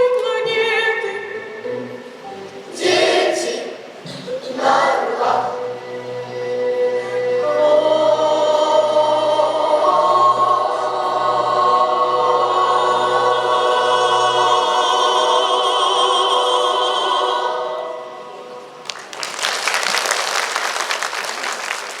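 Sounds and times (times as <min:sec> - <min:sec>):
choir singing held chord: 0:02.7 - 0:18.7
audience applause: 0:18.9 - 0:22.0.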